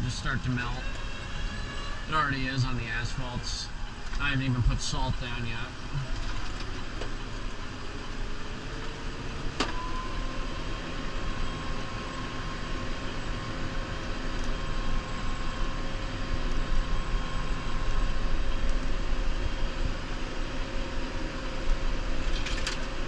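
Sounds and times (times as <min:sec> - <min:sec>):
steady whine: 0:00.0 - 0:23.0
tractor diesel engine running: 0:00.0 - 0:23.0.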